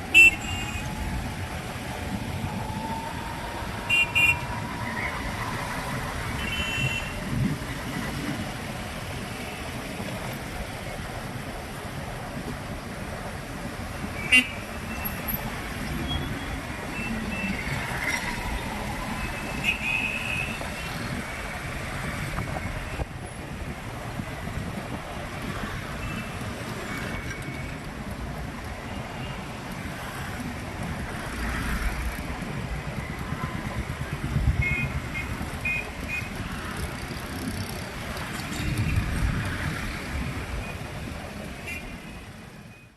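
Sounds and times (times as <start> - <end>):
road and wind rumble: 0.0 - 42.9
street traffic noise: 0.0 - 42.9.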